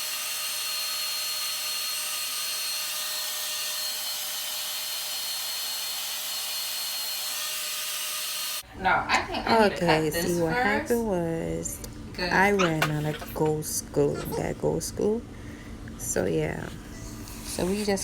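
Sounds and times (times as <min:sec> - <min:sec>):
hair dryer running: 0:00.0 - 0:08.6.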